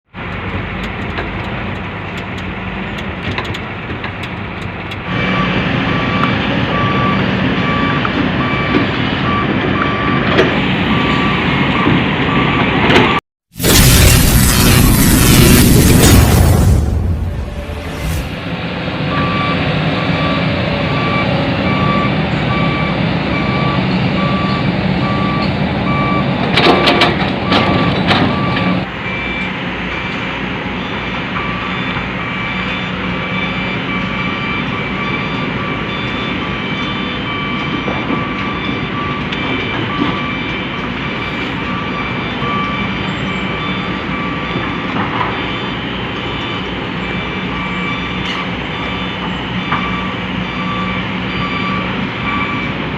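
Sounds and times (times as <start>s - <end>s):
reversing alarm beeping: 5.1s - 12.8s, 19.0s - 52.9s.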